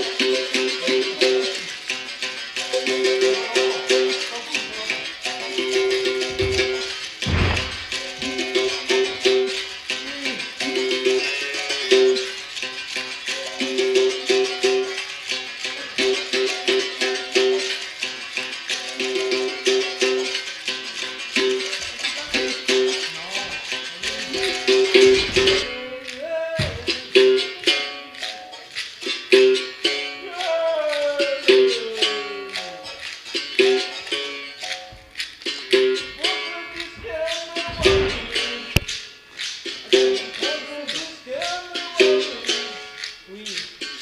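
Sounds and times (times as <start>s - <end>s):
shaker rattle: 0.0s - 44.0s.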